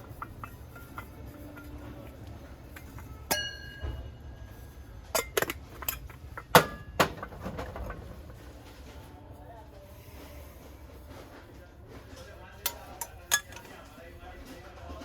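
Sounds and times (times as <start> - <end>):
brass kitchenware clinking: 0.0 - 8.7, 11.9 - 14.0
ringing metallic strike: 3.3 - 4.4.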